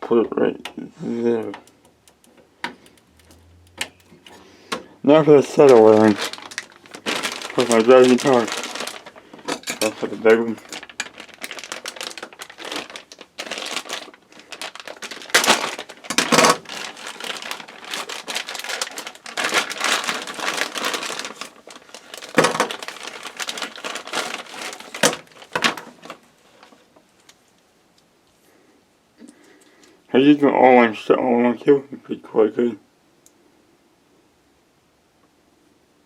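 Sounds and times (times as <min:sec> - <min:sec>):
plastic bag crinkling: 0:02.7 - 0:27.4.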